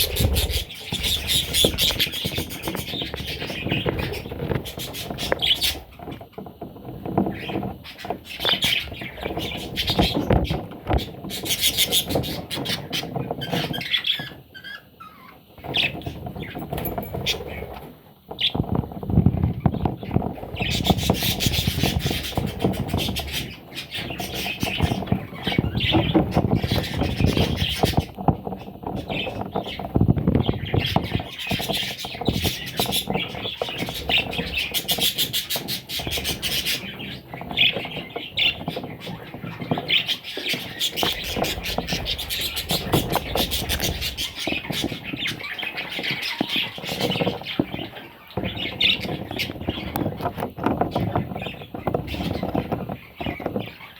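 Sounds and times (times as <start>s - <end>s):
parrot chicks squawking: 0.0s - 17.7s, 19.4s - 53.9s.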